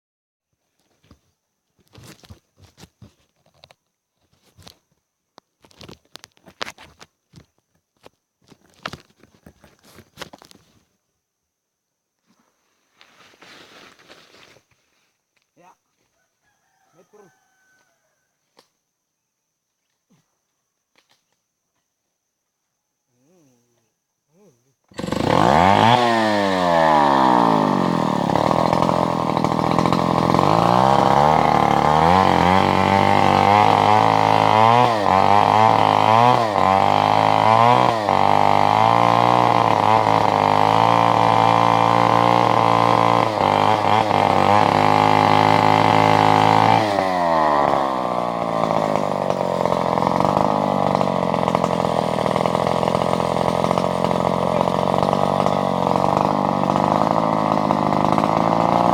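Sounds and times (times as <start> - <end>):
chainsaw engine revving: 24.8 - 58.9.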